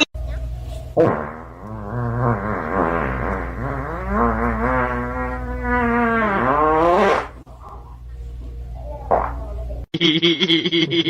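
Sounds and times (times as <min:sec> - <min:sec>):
buzzy wavering vocal cry: 0:03.6 - 0:07.4.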